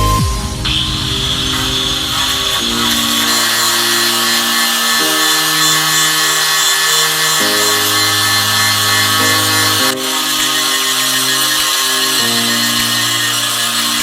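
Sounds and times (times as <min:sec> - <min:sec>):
background music with slow chords: 0:00.0 - 0:14.0
power tool hissing: 0:00.0 - 0:14.0.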